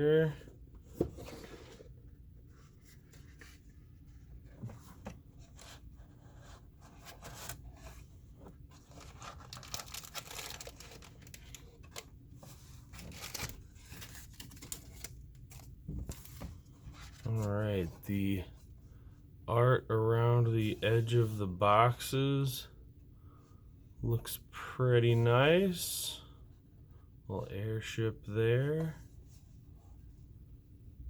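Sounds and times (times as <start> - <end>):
plastic packaging tearing and crinkling: 8.9 - 12.0, 13.0 - 15.1.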